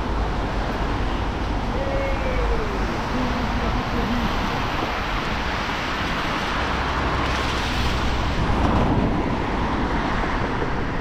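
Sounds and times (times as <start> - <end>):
traffic on wet road: 0.0 - 11.0.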